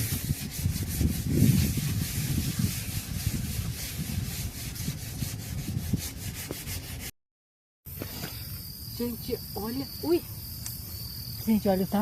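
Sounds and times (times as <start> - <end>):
rough rubbing scrape: 0.0 - 7.1
insect trill: 7.9 - 12.0.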